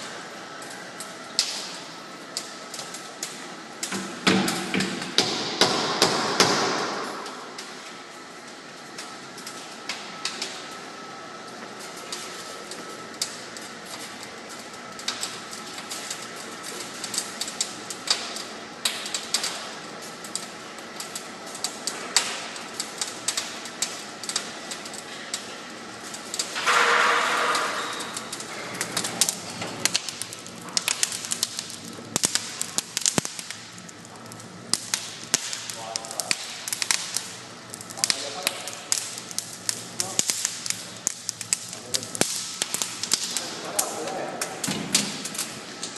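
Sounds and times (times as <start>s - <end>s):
wood fire crackling: 0.0s - 45.9s
fire hissing: 21.0s - 45.9s.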